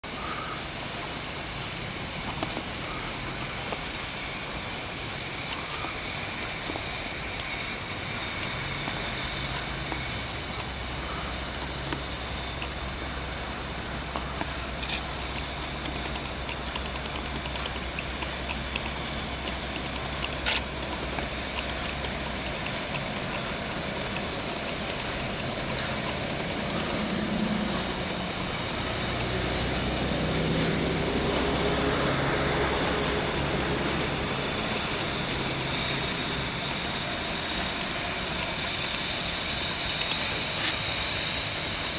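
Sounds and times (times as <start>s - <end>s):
freight train rumbling on rails: 0.0s - 41.9s.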